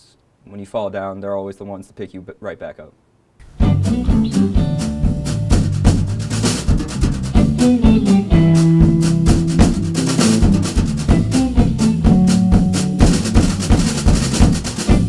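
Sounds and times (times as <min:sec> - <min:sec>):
drum kit beat: 0:03.4 - 0:15.0
jazz combo playing: 0:03.4 - 0:15.0
walking bass line: 0:03.4 - 0:15.0.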